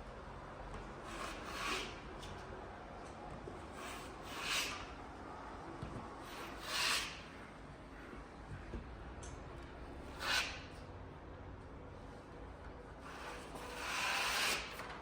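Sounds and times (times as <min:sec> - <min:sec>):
hand tool rubbing ceiling: 0:01.0 - 0:02.3, 0:03.6 - 0:05.0, 0:06.2 - 0:07.4, 0:10.0 - 0:10.8, 0:13.0 - 0:14.9.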